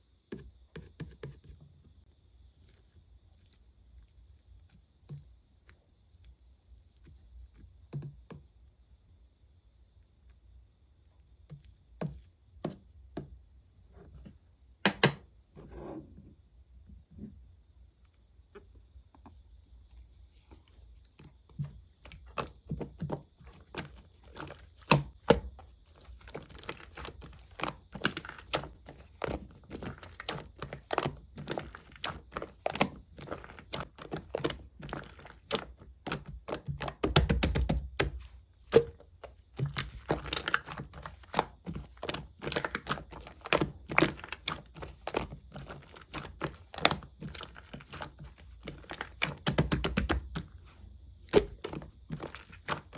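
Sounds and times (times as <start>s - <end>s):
slime squelch: 19.8s - 52.9s
slime squishing with sticky clicks: 21.0s - 52.9s.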